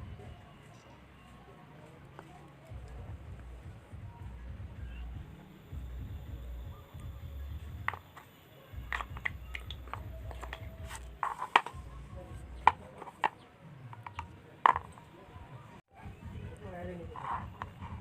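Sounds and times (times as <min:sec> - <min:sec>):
small parts and tools clicking: 0:07.8 - 0:11.8.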